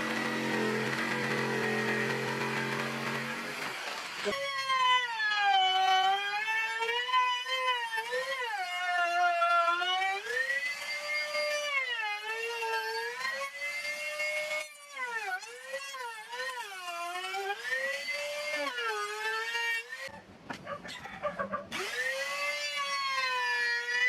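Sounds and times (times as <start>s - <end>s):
power tool motor whining: 0.0s - 13.6s, 21.7s - 24.0s.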